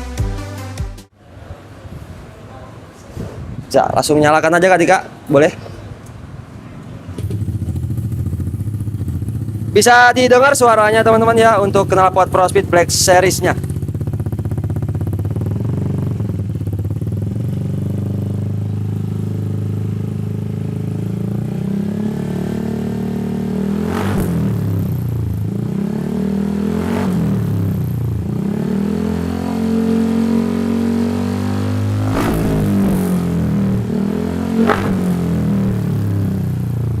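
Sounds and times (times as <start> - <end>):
scooter engine idling and revving: 5.8 - 37.0
exhaust crack: 6.8 - 37.0.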